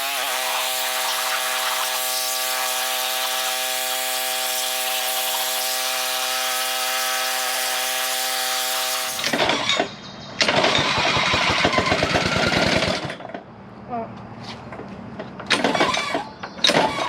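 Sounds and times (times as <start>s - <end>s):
water spray hissing: 0.0s - 9.4s
pressure washer whining: 0.0s - 13.4s, 15.4s - 17.0s.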